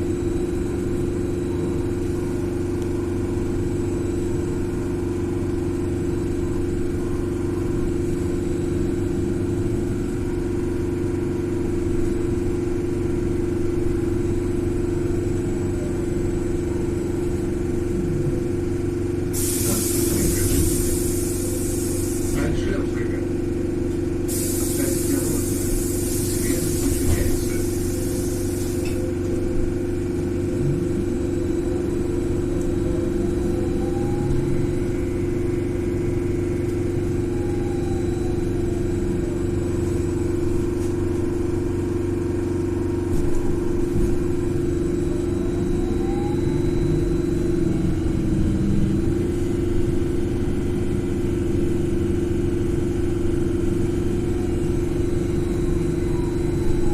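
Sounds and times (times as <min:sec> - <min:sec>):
traction drive whine: 0:00.0 - 0:56.9
trolleybus electric hum: 0:00.0 - 0:56.9
hiss: 0:19.3 - 0:22.4, 0:24.3 - 0:28.9.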